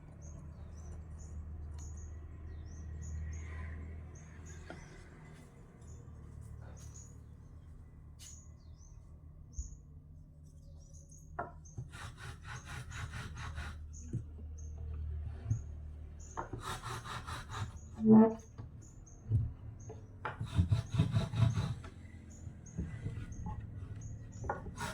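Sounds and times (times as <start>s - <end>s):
hand tool strokes on wood: 11.9s - 13.8s, 16.6s - 18.1s.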